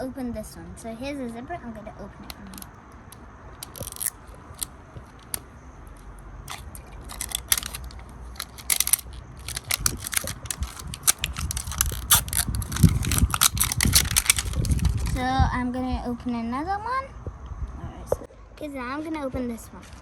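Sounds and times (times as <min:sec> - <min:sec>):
plastic wrapping crinkling: 0:03.6 - 0:05.4, 0:06.5 - 0:15.3.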